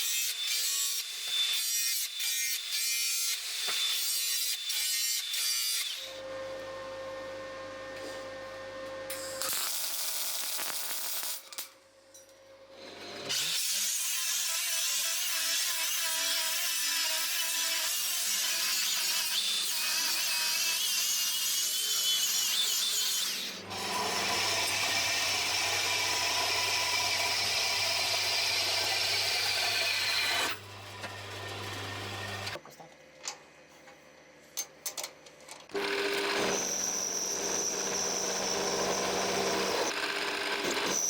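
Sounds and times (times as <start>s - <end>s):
power tool grinding: 12.8s - 32.6s, 35.7s - 41.0s
power tool low hum: 23.3s - 32.6s, 35.7s - 41.0s.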